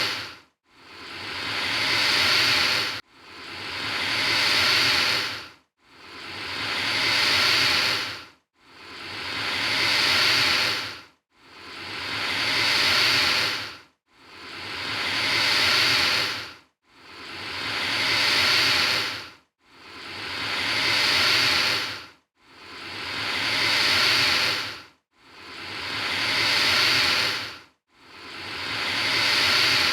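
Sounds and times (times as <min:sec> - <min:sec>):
alligator hissing: 0:00.0 - 0:00.3, 0:00.9 - 0:03.0, 0:03.6 - 0:05.4, 0:06.2 - 0:08.1, 0:08.8 - 0:10.9, 0:11.7 - 0:13.7, 0:14.4 - 0:16.4, 0:17.2 - 0:19.2, 0:20.0 - 0:22.0, 0:22.7 - 0:24.8, 0:25.4 - 0:27.5, 0:28.2 - 0:29.9.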